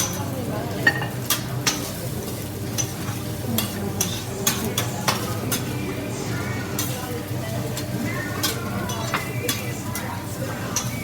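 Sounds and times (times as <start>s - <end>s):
food sizzling on griddle: 0.0s - 11.0s.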